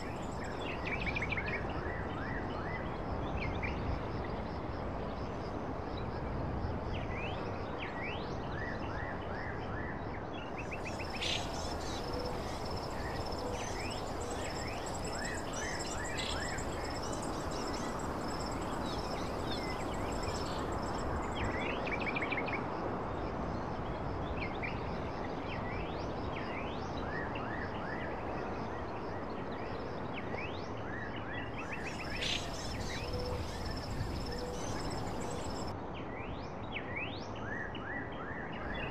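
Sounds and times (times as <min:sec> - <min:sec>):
small birds chirping: 0:00.0 - 0:01.1, 0:10.6 - 0:21.7, 0:31.6 - 0:35.7
high insect trill: 0:00.0 - 0:01.4, 0:10.6 - 0:22.1, 0:31.6 - 0:35.7.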